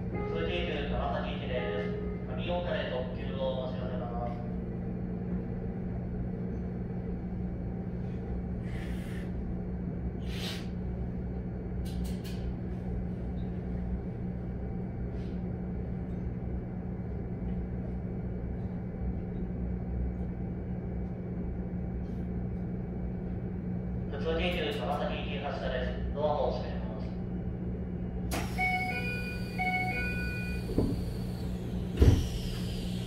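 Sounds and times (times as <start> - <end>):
electric train humming: 0.0 - 8.7, 27.5 - 33.0.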